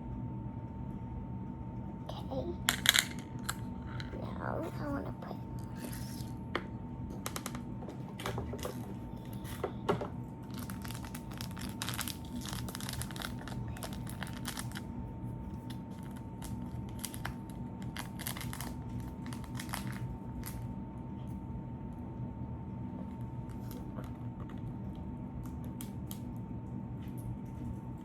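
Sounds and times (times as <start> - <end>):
faint steady whine: 0.0 - 28.0
slime crinkling and crackling: 10.4 - 20.7.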